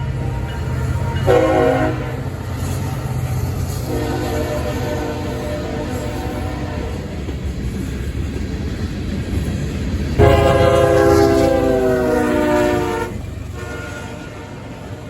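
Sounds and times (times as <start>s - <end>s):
locomotive horn: 0.0s - 2.5s, 3.8s - 7.1s, 10.2s - 15.0s
rumble of passing train: 0.0s - 15.0s.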